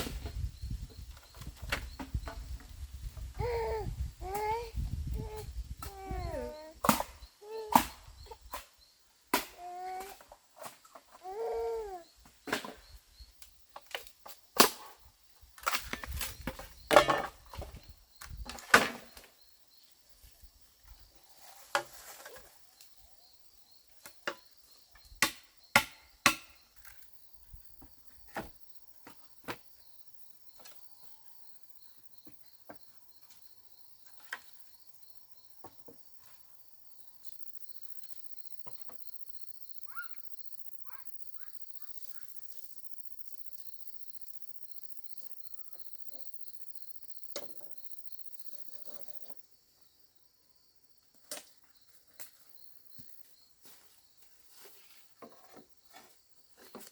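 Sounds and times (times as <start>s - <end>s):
crickets chirping: 0.0s - 56.9s
knocks and chops on wood: 6.8s - 8.0s, 9.3s - 9.6s, 25.2s - 26.6s.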